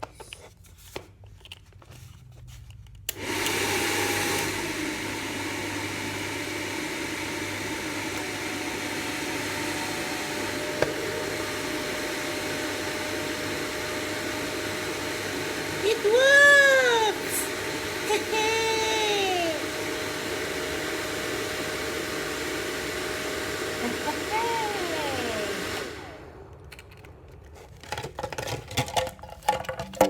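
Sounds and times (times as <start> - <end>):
hairdryer running with whine: 3.1 - 27.2.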